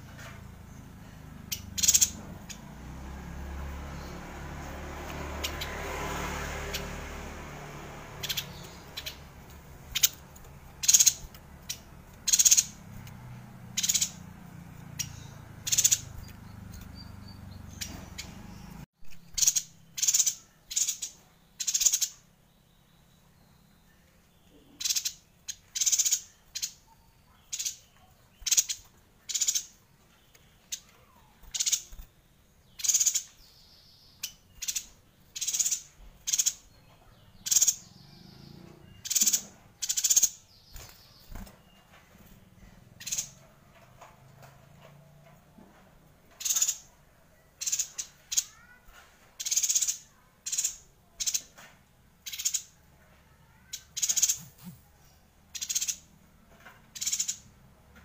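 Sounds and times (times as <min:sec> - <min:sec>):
bird high-pitched calls: 0:00.1 - 0:02.8, 0:08.2 - 0:22.3, 0:23.9 - 0:43.5, 0:46.3 - 0:56.1, 0:56.9 - 0:57.5.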